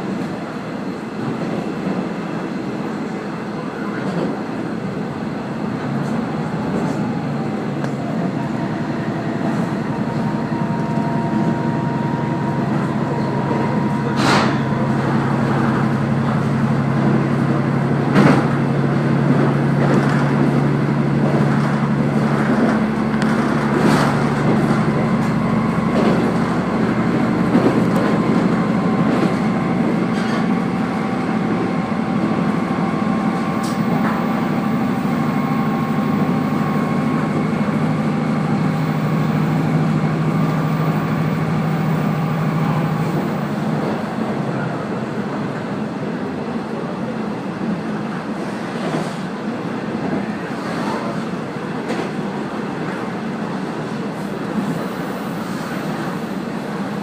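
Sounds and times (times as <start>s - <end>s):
railcar engine drone: 0.0s - 57.0s
rumbling wheel noise: 5.7s - 45.7s.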